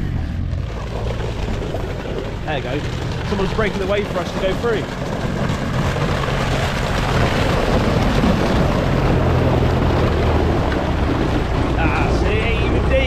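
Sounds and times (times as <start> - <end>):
vehicle engine running: 0.0 - 13.0
water splashing and ice breaking: 0.6 - 13.0.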